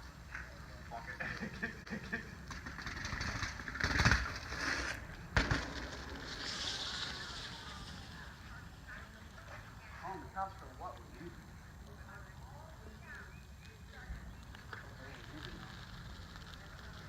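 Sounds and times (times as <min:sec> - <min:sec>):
bicycle tyres rolling on dirt: 0:00.0 - 0:17.0
bicycle landing thud: 0:02.5 - 0:07.3.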